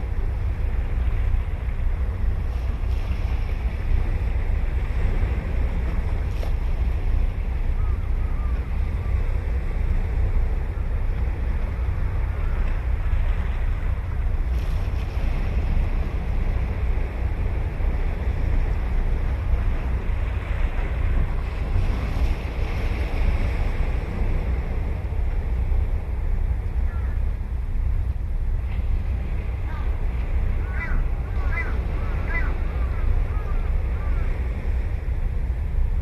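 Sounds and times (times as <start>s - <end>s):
wind rumbling on microphone: 0.0s - 36.0s.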